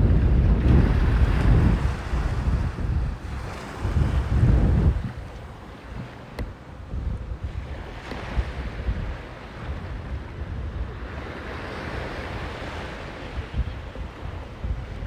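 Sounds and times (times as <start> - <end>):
sea surf washing in: 0.0 - 15.0
wind buffeting microphone: 0.0 - 15.0.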